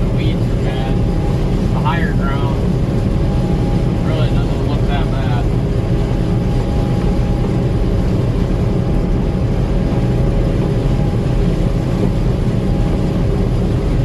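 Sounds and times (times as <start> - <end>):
combine harvester engine drone: 0.0 - 14.0
faint steady whine: 0.0 - 14.0.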